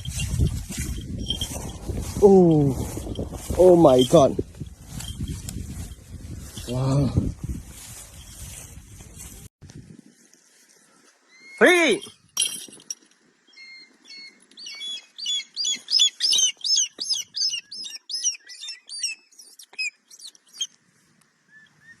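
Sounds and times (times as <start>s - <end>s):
bird chirping: 13.4s - 20.8s.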